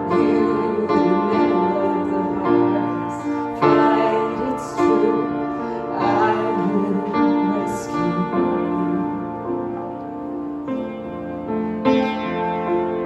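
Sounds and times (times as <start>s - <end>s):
woman singing: 0.0s - 9.5s
piano chords: 0.0s - 13.0s.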